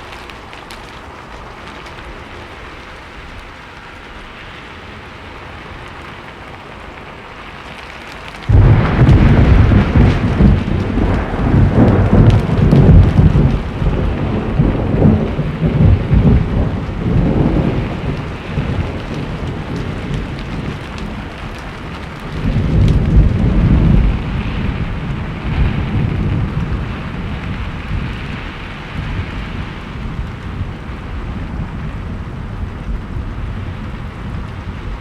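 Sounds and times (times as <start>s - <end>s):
heavy rain: 0.0s - 35.0s
rolling thunder: 8.4s - 35.0s.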